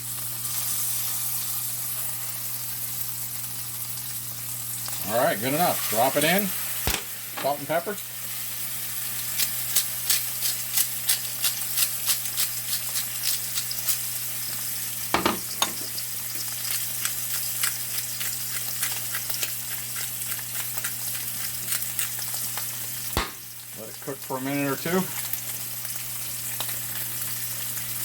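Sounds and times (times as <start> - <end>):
steak sizzling in a skillet: 0.0 - 28.0
fat crackling and popping: 4.9 - 8.0, 20.2 - 25.4.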